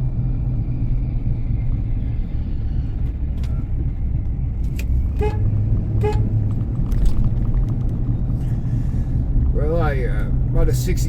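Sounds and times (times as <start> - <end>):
steady low rumble: 0.0 - 11.0
car horn toots: 5.1 - 6.4.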